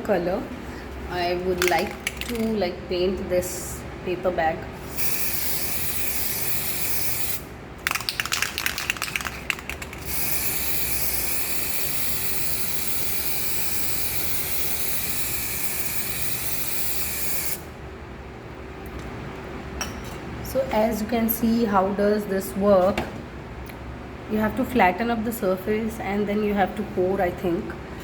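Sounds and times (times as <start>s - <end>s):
spray can rattling: 1.6s - 2.6s, 4.9s - 17.6s
spray paint can hissing: 4.8s - 17.7s.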